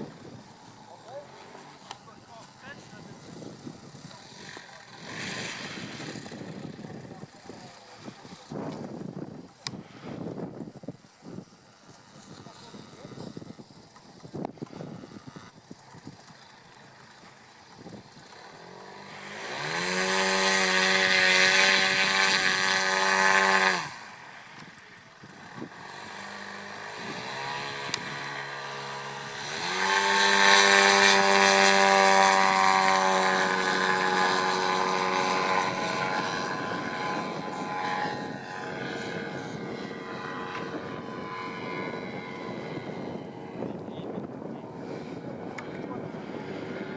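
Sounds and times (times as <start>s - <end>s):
model airplane petrol engine: 0.0s - 46.9s.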